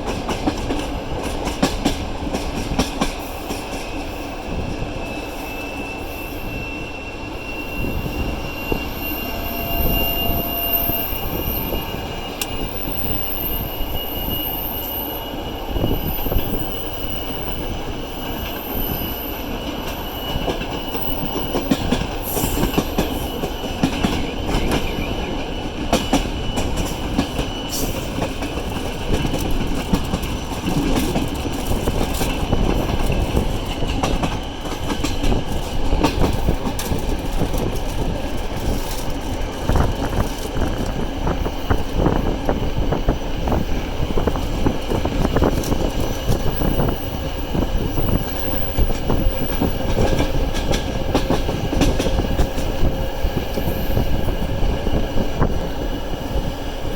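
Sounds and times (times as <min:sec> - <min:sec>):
train rumbling on track: 0:00.0 - 0:56.9
thin squealing tones: 0:05.0 - 0:30.0
wheels clacking over rail joints: 0:19.6 - 0:42.9.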